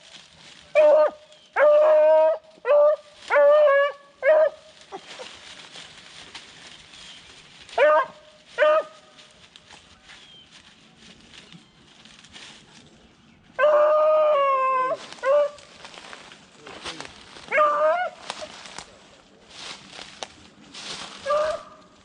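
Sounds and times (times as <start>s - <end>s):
hound baying: 0.7s - 5.3s, 7.8s - 9.0s, 13.6s - 15.7s, 17.5s - 18.5s, 21.2s - 21.9s.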